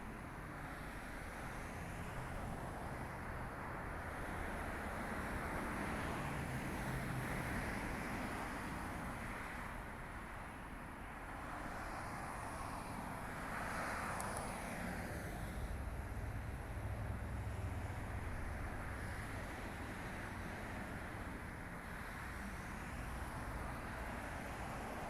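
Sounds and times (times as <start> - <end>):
distant vehicle hum: 12.5 - 25.0.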